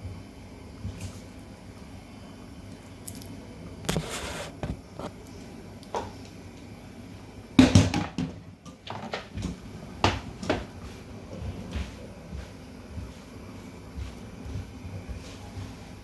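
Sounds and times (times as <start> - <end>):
kitchen items clattering: 7.6 - 10.8.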